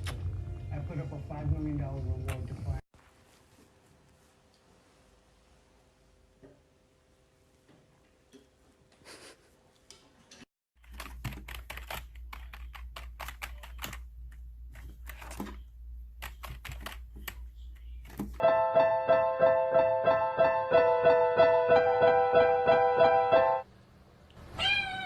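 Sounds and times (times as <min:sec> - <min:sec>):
piano music: 0:18.4 - 0:23.7.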